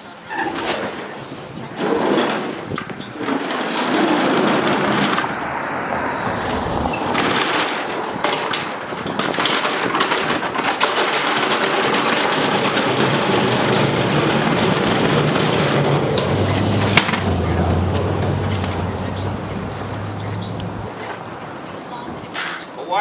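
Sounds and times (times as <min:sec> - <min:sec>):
wheels rumbling over hard floor: 0:00.0 - 0:22.6
small knocks: 0:06.9 - 0:22.0.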